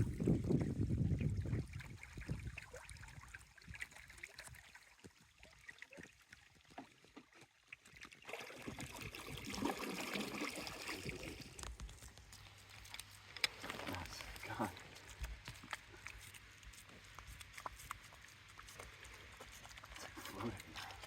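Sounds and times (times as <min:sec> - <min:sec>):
water trickling and dripping: 0:00.0 - 0:21.0
small ticks: 0:11.6 - 0:21.0.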